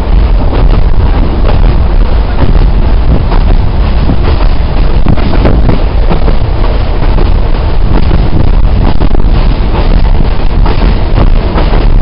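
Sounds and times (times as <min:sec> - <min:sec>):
train rumble and rushing air: 0:00.0 - 0:12.0
wind buffeting microphone: 0:00.0 - 0:12.0.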